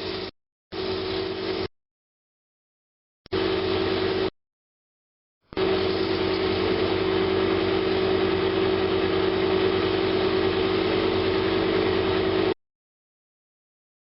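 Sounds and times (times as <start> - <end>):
woodturning lathe humming: 5.6 - 12.5.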